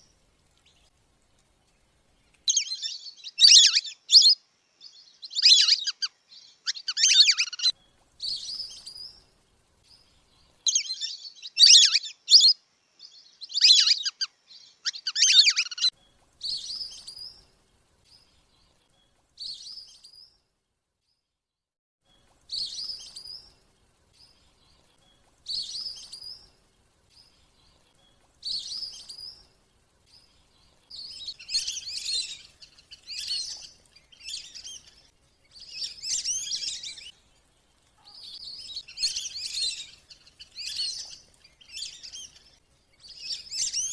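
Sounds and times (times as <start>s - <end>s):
ducks whistling calls: 2.5s - 4.4s, 5.3s - 6.1s, 6.7s - 7.7s, 10.7s - 12.5s, 13.5s - 14.3s, 14.9s - 15.9s.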